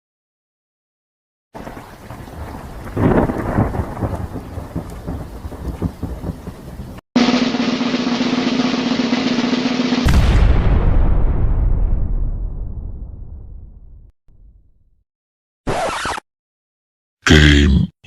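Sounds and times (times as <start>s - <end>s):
steady rain: 1.6s - 7.6s
thunder rolling: 1.6s - 9.4s, 10.0s - 14.1s.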